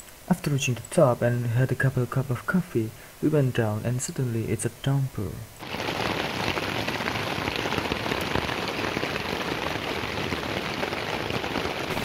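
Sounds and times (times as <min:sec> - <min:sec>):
heavy rain: 0:05.6 - 0:12.0.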